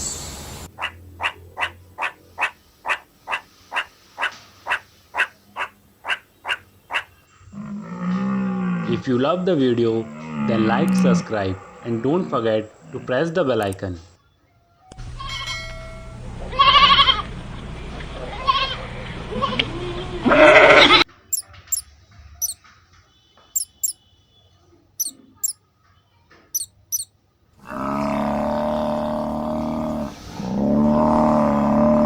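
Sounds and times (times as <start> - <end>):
mixed animal calls: 0.2 - 13.0, 18.3 - 21.8, 23.6 - 24.0, 25.0 - 25.6, 26.6 - 32.0
long wavering animal calls: 0.5 - 9.0, 23.6 - 24.0, 25.0 - 25.6, 26.6 - 27.0, 27.6 - 32.0
short high chirps: 23.6 - 24.0, 25.0 - 25.6, 26.6 - 27.1.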